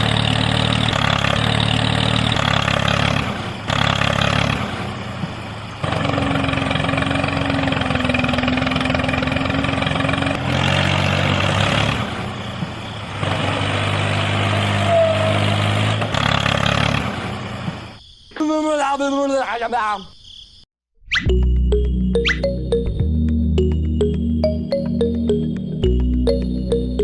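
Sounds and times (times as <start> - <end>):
small engine running: 0.0 - 17.8.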